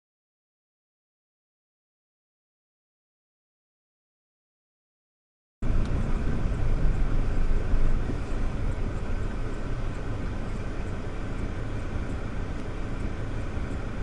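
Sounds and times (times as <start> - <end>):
car driving rumble: 5.6 - 14.0.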